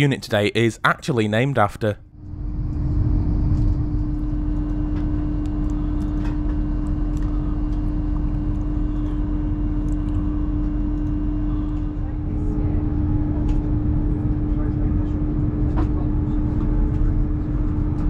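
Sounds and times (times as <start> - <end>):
train interior running noise: 11.5 - 18.0.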